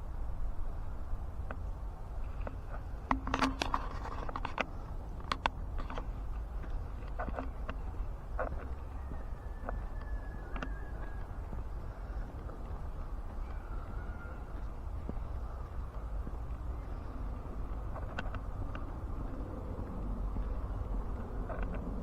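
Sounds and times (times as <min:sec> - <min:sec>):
low rumble: 0:05.0 - 0:22.0.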